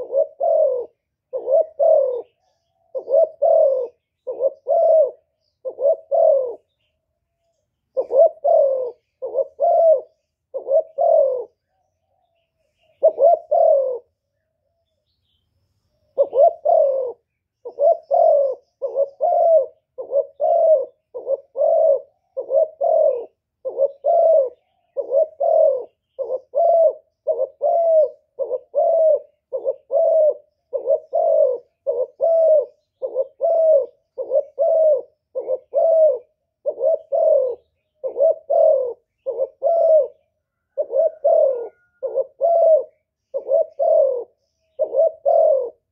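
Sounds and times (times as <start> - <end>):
dove cooing: 0.0 - 15.0, 16.0 - 45.9.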